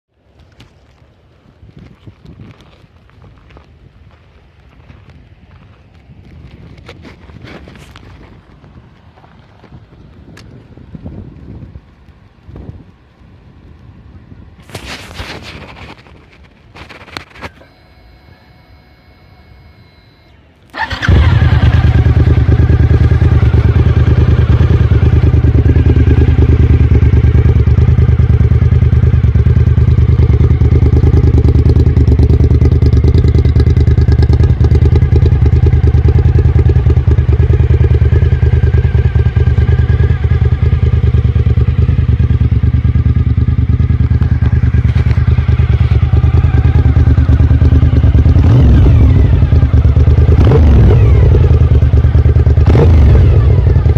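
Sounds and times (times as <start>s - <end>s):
motorcycle engine idling deeply: 20.7s - 53.9s.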